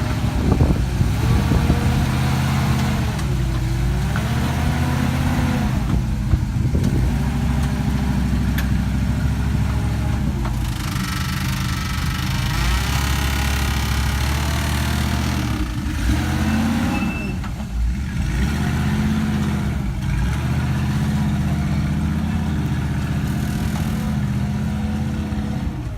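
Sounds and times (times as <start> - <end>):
off-road vehicle engine revving: 0.0 - 25.9.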